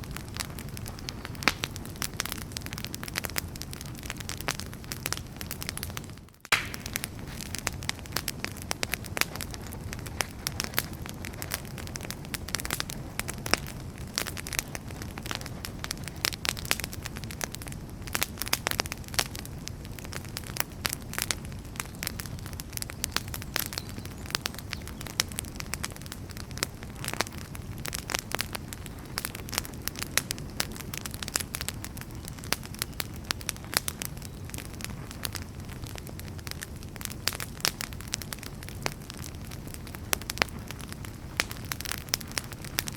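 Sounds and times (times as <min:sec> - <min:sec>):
low rumble of flames: 0:00.0 - 0:42.9
wood fire crackling: 0:00.0 - 0:42.9.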